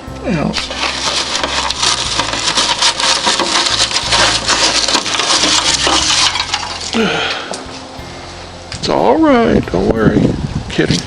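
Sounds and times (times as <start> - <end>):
dry twigs crackling and snapping: 0.6 - 7.7.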